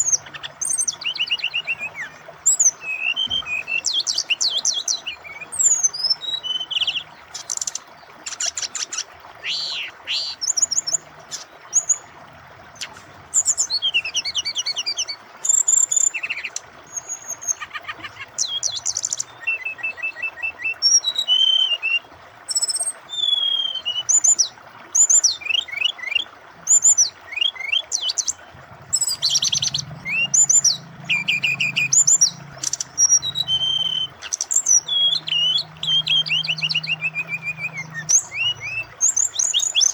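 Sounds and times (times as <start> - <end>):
bird singing whistled phrases: 0.0 - 7.1, 9.4 - 10.9, 18.4 - 28.2, 28.9 - 39.9
flowing water rushing: 0.0 - 39.9.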